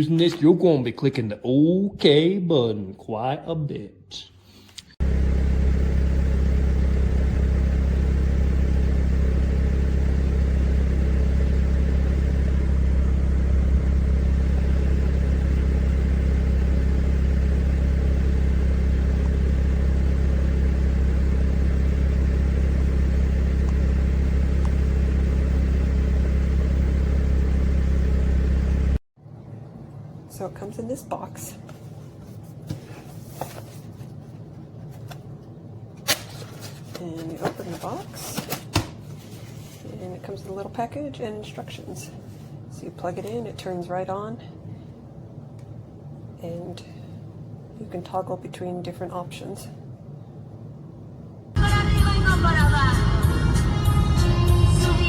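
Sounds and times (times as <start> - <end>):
vehicle low rumble: 5.0 - 29.0.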